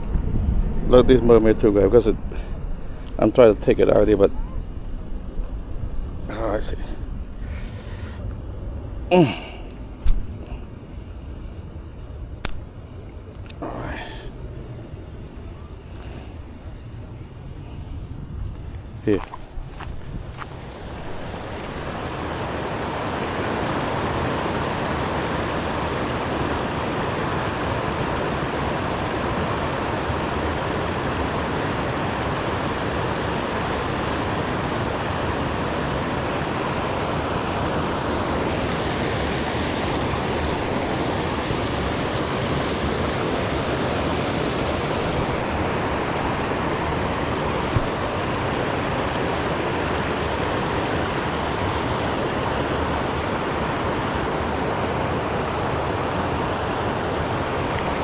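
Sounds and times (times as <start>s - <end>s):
river water flowing: 18.8s - 58.0s.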